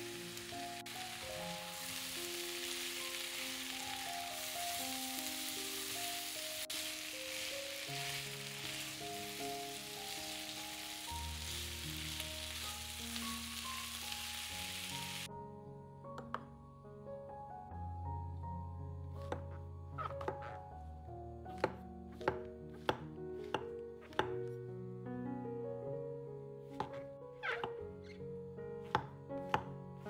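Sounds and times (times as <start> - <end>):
food sizzling in a hot pan: 0.0 - 15.3
background music: 0.0 - 30.0.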